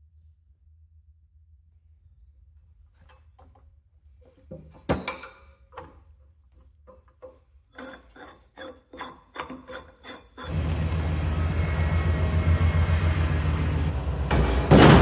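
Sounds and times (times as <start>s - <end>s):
rasping scraping strokes on metal: 7.2s - 10.6s
low-pitched machine noise: 7.8s - 15.0s.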